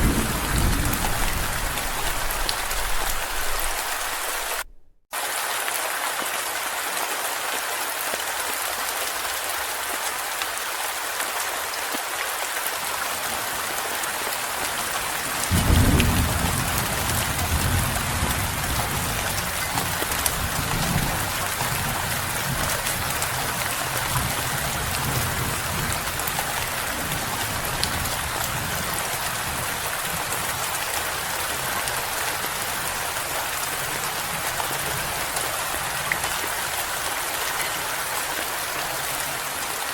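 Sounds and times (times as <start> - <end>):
thunder rumbling: 0.0 - 5.0, 15.5 - 22.8
rain hissing: 0.0 - 5.8.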